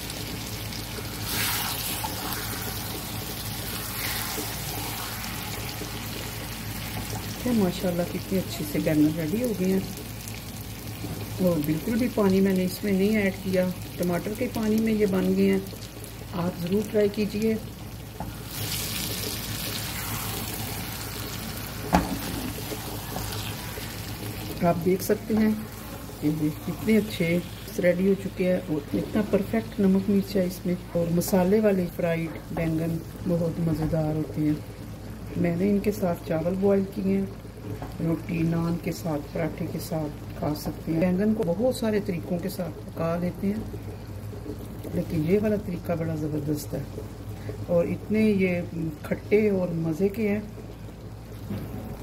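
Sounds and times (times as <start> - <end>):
vegetables sizzling in a frying pan: 0.0 - 52.0
spatula turning food: 18.2 - 27.7.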